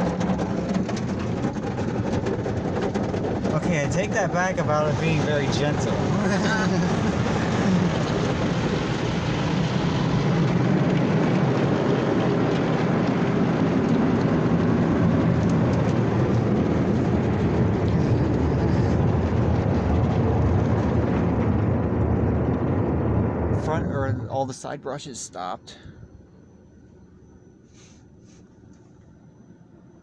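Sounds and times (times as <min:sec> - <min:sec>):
car wash brushes churning: 0:00.0 - 0:20.9.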